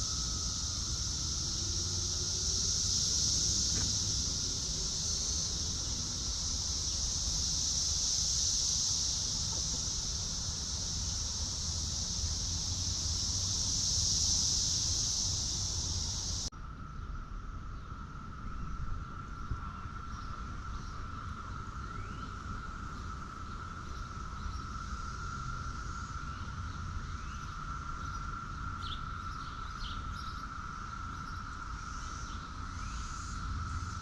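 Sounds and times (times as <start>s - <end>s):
high-pitched insect chorus: 0.0s - 34.0s
low wind rumble on microphone: 0.0s - 34.0s.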